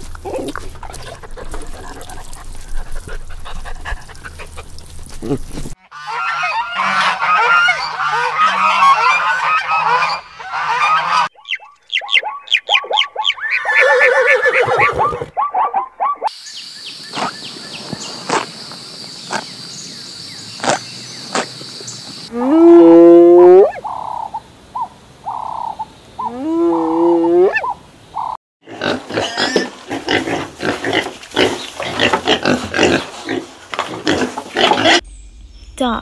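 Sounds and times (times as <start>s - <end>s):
piglets grunting and squealing: 28.7s - 35.0s.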